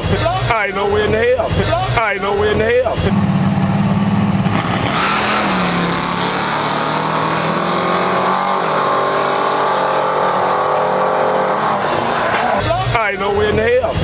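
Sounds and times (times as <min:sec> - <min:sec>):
car engine running: 0:03.1 - 0:12.6.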